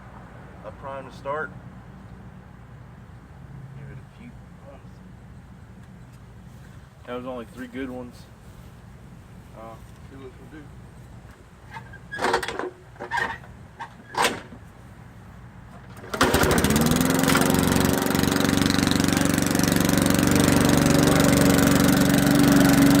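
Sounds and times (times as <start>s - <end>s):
lawn mower engine running: 10.8s - 23.0s
starter cord pulls: 11.7s - 14.6s, 15.8s - 18.9s.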